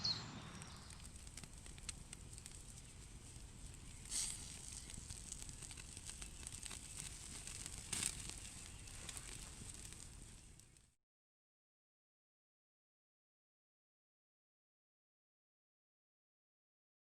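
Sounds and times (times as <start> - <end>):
small crackles and ticks: 0.5 - 11.0.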